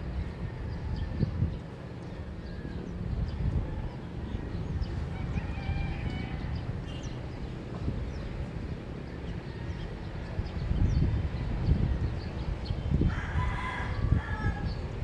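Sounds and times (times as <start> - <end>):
small birds chirping: 0.7 - 13.1
rooster crowing: 5.2 - 6.4, 13.0 - 14.8.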